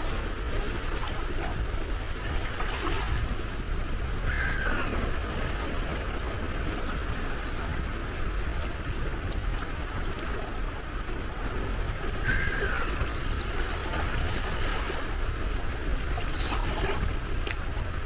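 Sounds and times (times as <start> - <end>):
sea waves washing on shore: 0.0 - 18.0
gull call: 4.3 - 5.1, 12.2 - 13.6.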